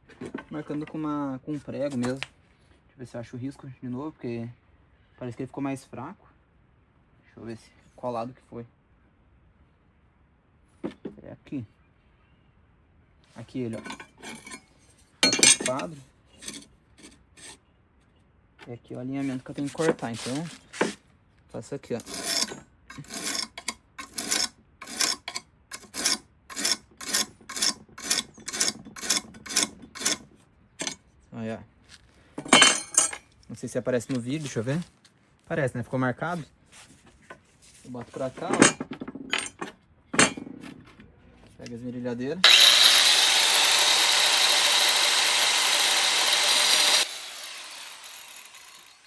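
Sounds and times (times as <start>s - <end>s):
nail scratching stone: 13.8s - 14.6s, 15.2s - 17.6s, 19.2s - 21.0s, 22.0s - 31.0s.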